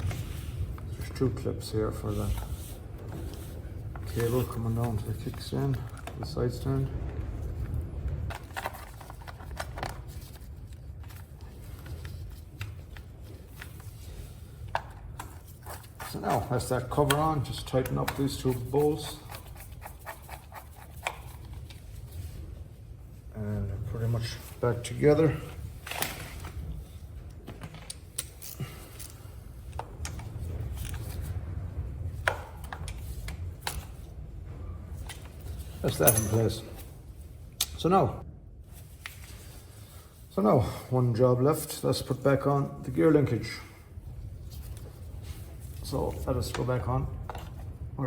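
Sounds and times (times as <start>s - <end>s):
low rumble: 0.0s - 14.6s
low background hum: 0.0s - 48.0s.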